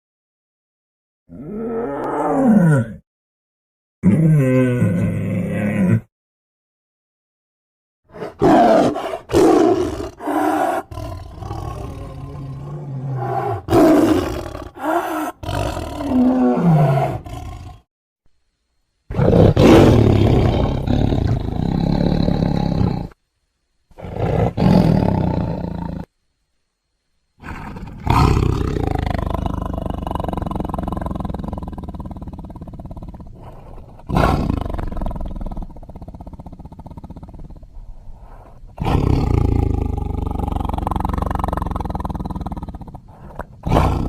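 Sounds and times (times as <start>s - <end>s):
tiger roars and growls: 1.3s - 3.0s, 8.1s - 17.9s, 19.1s - 23.2s, 27.4s - 44.0s.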